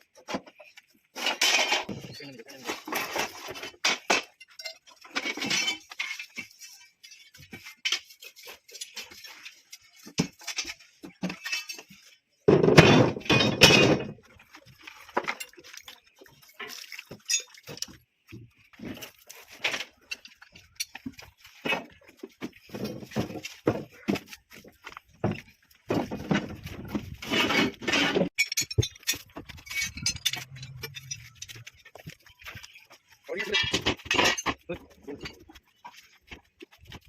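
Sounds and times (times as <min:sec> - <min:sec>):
metal clinks and knocks: 0:00.4 - 0:37.0
metal clattering: 0:18.9 - 0:37.0.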